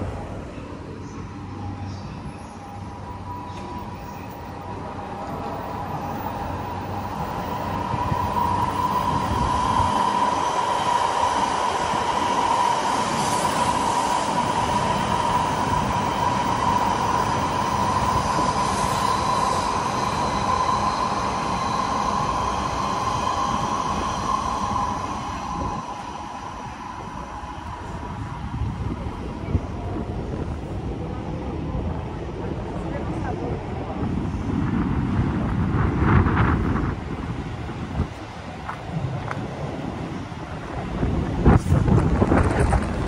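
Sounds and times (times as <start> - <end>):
electric train rumbling: 0.0 - 43.0
high-pitched whine: 1.0 - 29.5.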